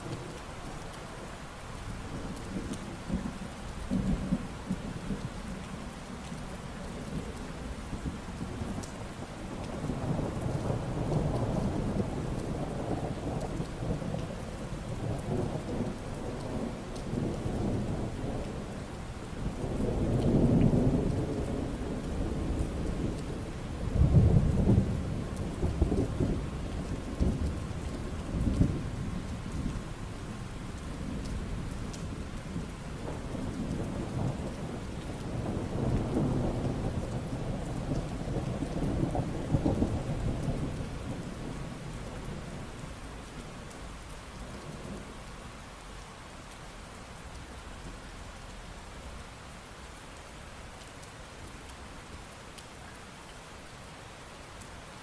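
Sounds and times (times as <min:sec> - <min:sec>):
steady rain falling: 0:00.0 - 0:55.0
thunder rumbling: 0:19.4 - 0:43.2.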